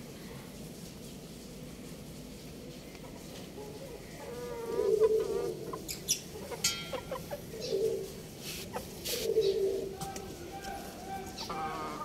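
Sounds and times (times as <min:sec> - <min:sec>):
birds making low calls: 0:03.7 - 0:12.0.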